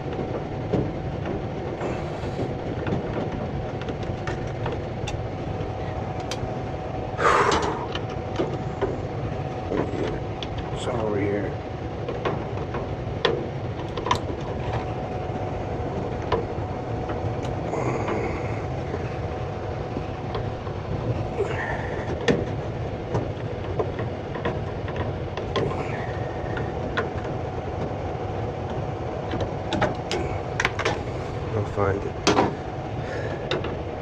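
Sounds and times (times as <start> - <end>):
faint steady hum: 0.0 - 34.0
low mechanical rumble: 0.0 - 34.0.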